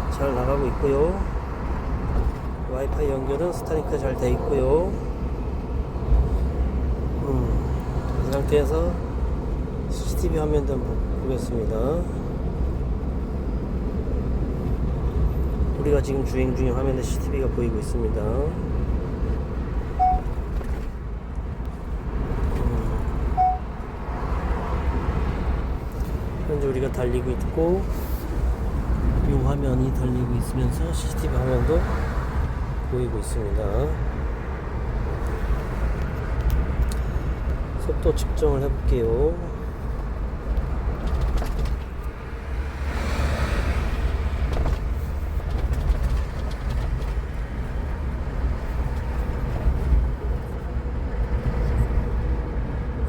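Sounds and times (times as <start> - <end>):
road and engine rumble in car: 0.0 - 53.0
short beep: 20.0 - 20.4, 23.4 - 23.7.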